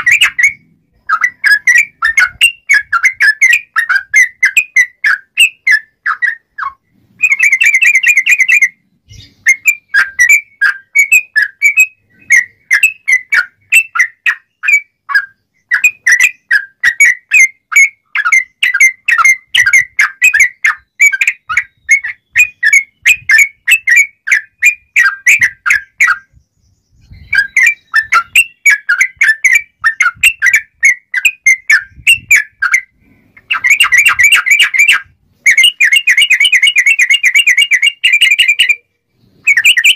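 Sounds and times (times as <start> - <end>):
bird singing bubbling whistles: 0.0 - 39.9.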